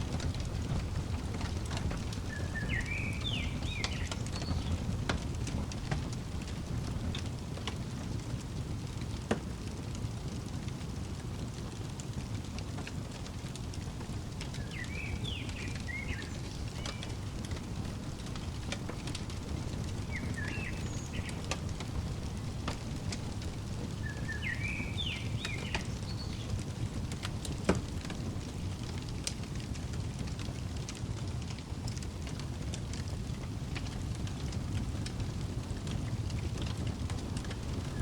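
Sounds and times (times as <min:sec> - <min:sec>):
songbird chirping: 0:00.0 - 0:07.0, 0:14.0 - 0:29.0, 0:37.1 - 0:38.0
sharp pops from fire: 0:00.0 - 0:38.0
wood fire crackling: 0:00.0 - 0:38.0.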